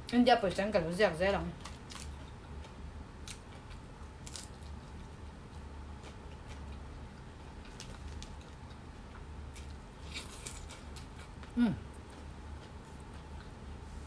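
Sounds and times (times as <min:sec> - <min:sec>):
low steady hum: 0:00.0 - 0:14.0
chewing a crunchy snack: 0:01.6 - 0:05.2, 0:06.0 - 0:13.6.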